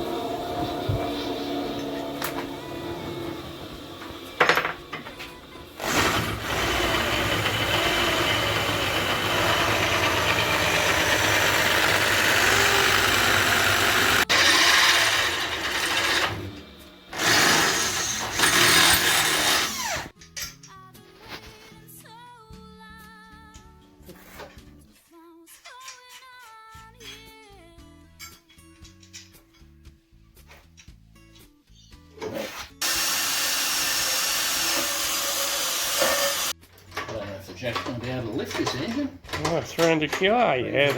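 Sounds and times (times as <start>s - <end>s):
power tool running on metal: 0.0s - 20.1s, 32.8s - 36.5s.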